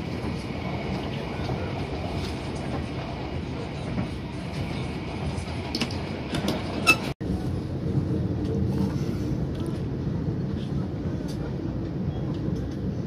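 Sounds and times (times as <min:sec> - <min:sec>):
train rumble inside coach: 0:00.0 - 0:13.0.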